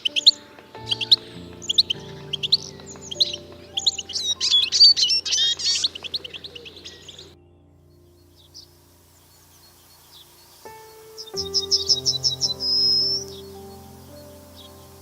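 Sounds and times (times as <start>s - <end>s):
birds chirping: 0.0s - 15.0s
soft background music: 0.0s - 15.0s.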